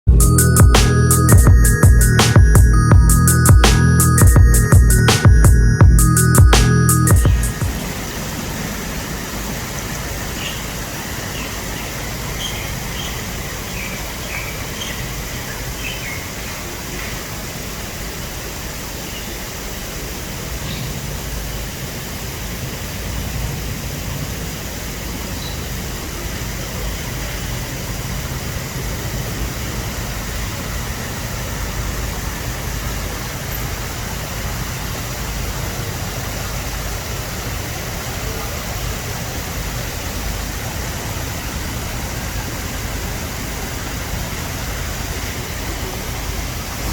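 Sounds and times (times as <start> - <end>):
faint chirps: 0.2 - 17.9
fountain water splashing: 7.5 - 46.9.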